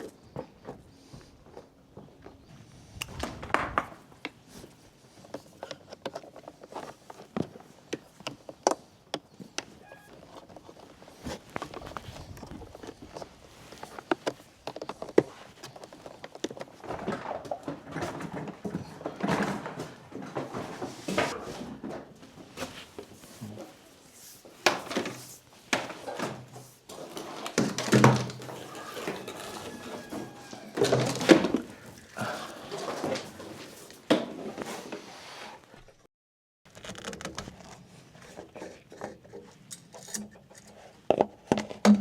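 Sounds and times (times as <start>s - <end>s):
knocks and clunks of handling: 27.5s - 34.4s.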